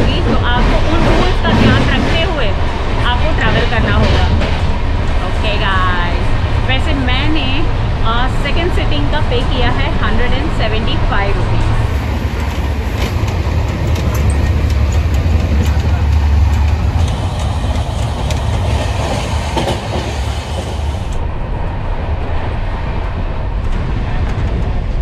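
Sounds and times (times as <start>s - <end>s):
train coach low rumble: 0.0s - 25.0s
wheels clicking and rattling: 12.0s - 21.2s.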